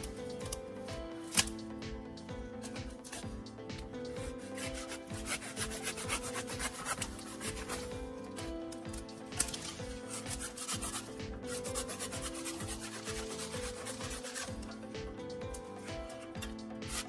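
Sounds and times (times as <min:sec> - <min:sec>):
soft background music: 0:00.0 - 0:17.0
rough scraping strokes: 0:04.2 - 0:15.0.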